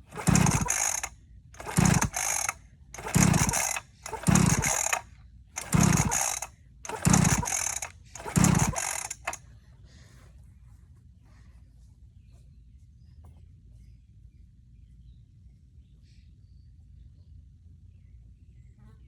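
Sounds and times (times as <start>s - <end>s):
dirt bike engine cranking: 0.0s - 5.0s, 5.6s - 9.4s.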